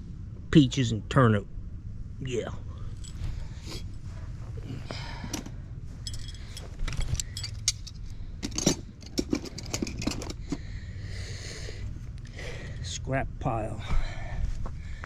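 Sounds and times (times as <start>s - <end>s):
steady low rumble: 0.0s - 15.0s
hard objects clinking: 5.3s - 10.6s.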